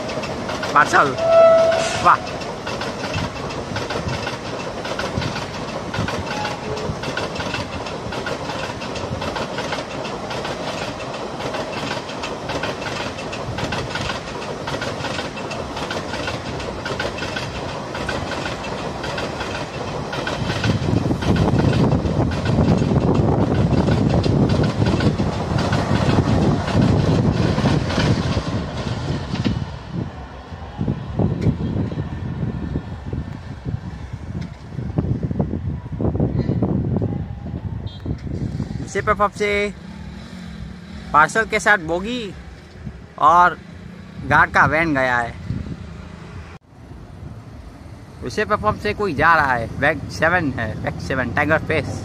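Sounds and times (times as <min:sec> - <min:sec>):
train wheels clickety-clack: 0:00.0 - 0:29.8
heavy train rumble: 0:00.0 - 0:52.0.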